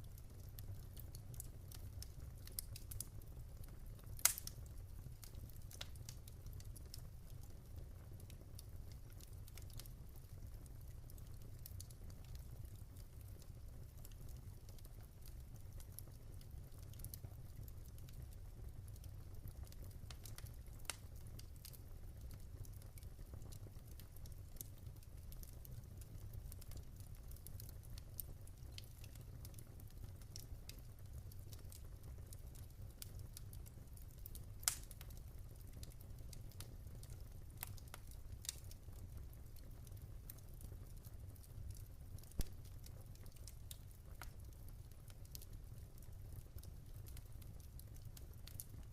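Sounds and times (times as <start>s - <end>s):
fire crackling and popping: 0.0s - 48.9s
fire rumbling: 0.1s - 13.9s, 19.2s - 48.9s.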